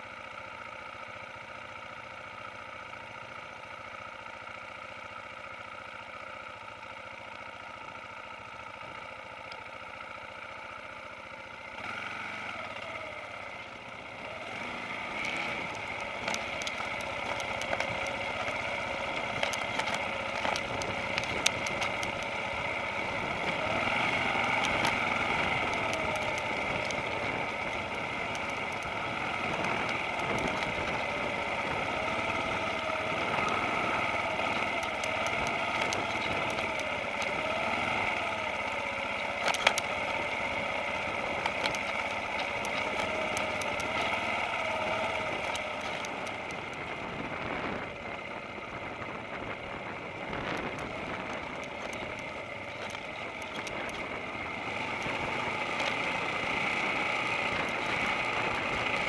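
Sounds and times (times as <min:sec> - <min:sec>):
motorcycle engine at low revs: 0:00.0 - 0:59.0
clicks and knocks over stones: 0:15.2 - 0:22.4, 0:39.3 - 0:40.3, 0:41.3 - 0:46.4, 0:50.6 - 0:54.1.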